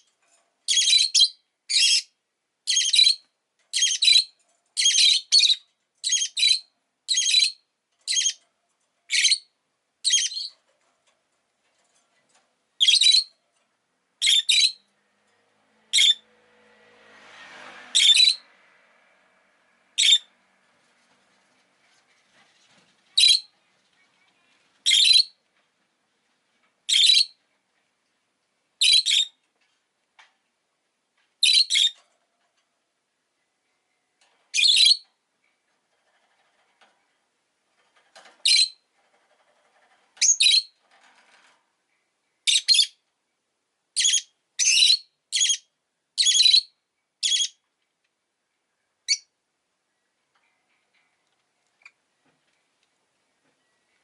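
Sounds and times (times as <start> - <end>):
lovebird chirping: 0.7 - 8.4, 9.1 - 10.6, 12.8 - 13.4, 14.2 - 14.9, 15.9 - 16.2, 18.0 - 18.4, 20.0 - 20.3, 23.1 - 25.4, 26.9 - 27.4, 28.8 - 29.4, 31.4 - 32.0, 34.5 - 35.1, 38.4 - 38.8, 40.2 - 40.8, 42.4 - 43.0, 44.0 - 47.6, 49.0 - 49.3.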